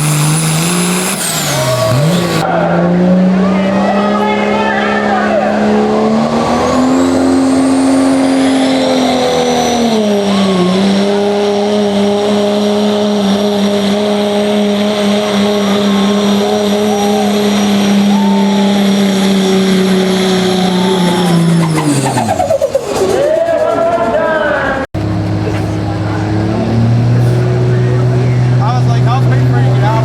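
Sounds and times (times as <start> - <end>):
diesel engine at full throttle: 0.0 - 30.0
high turbo whistle: 14.6 - 22.9.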